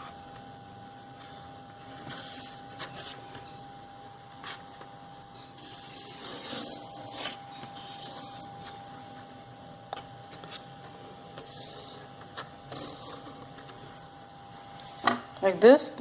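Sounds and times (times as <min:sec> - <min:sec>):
pencil scratching on cardboard: 0:01.8 - 0:03.3, 0:05.6 - 0:08.8, 0:11.4 - 0:13.4.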